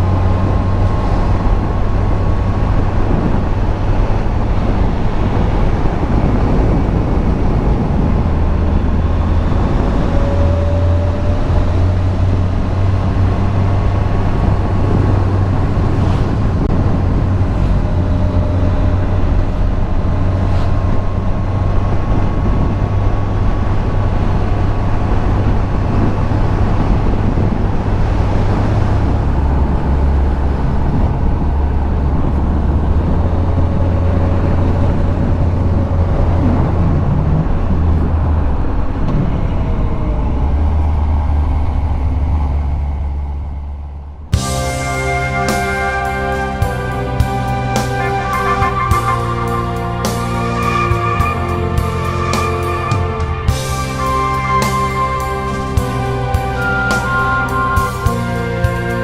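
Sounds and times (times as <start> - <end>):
wind rushing over microphone: 0.0 - 59.0
motorcycle engine running: 37.5 - 48.2.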